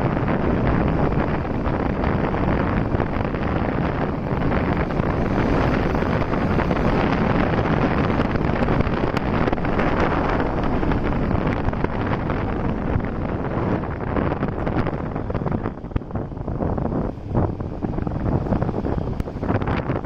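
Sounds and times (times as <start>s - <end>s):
motorcycle engine: 0.0s - 20.0s
road noise: 0.0s - 20.0s
wind buffeting microphone: 0.0s - 20.0s.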